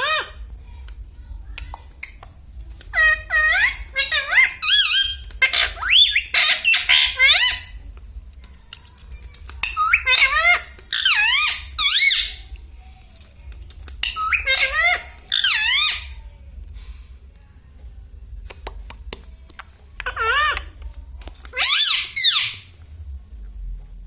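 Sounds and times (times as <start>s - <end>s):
parakeet squawking: 0.0s - 0.4s, 2.8s - 7.8s, 9.6s - 12.5s, 14.0s - 16.2s, 20.0s - 20.7s, 21.5s - 22.7s.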